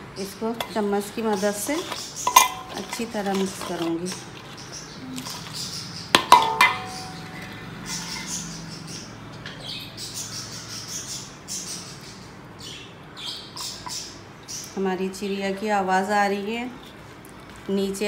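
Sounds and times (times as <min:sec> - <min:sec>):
birds chirping: 0:00.0 - 0:18.0
metal spoon clinking on bowl: 0:00.6 - 0:04.2, 0:06.2 - 0:08.3.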